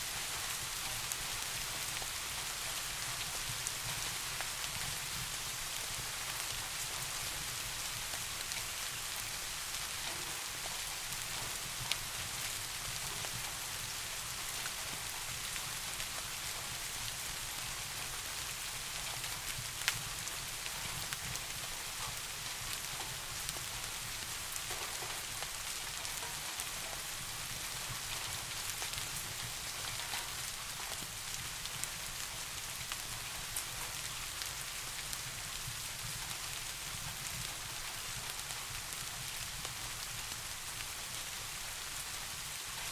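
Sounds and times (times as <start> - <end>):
steady rain: 0.0 - 42.9
raindrop ticks: 7.8 - 16.7, 18.9 - 41.1.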